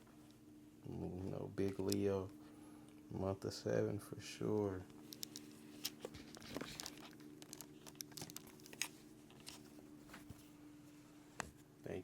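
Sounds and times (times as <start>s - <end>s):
steady low hum: 0.0s - 12.0s
gift wrapping crinkling: 5.0s - 10.5s.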